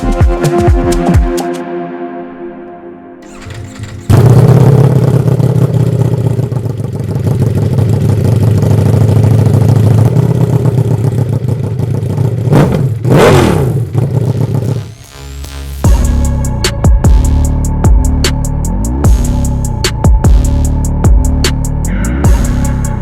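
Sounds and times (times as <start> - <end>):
motorcycle engine revving: 3.2 - 17.2.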